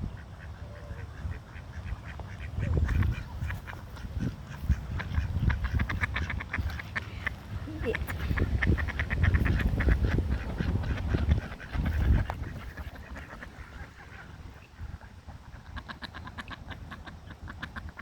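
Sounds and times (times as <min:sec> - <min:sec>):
ducks quacking rapidly: 0:00.0 - 0:18.0.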